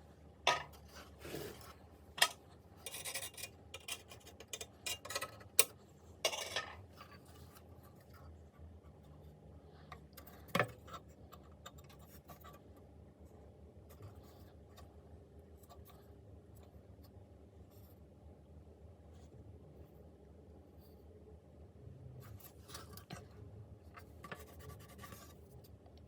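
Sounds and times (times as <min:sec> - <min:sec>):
small parts and tools scraping: 0:00.5 - 0:07.7
faint rubbing: 0:01.0 - 0:01.8.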